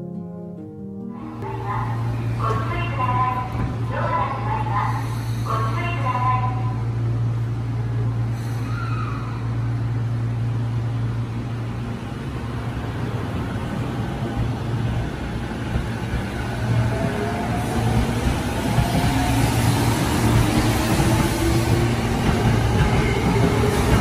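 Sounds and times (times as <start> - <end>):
train running noise: 1.4 - 24.0.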